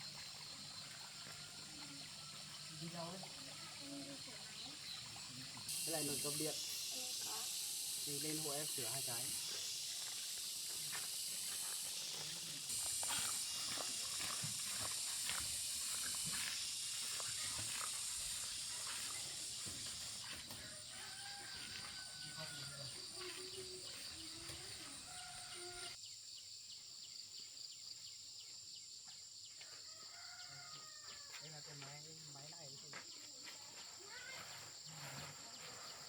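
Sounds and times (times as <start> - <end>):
insects shrilling: 0.0 - 26.0.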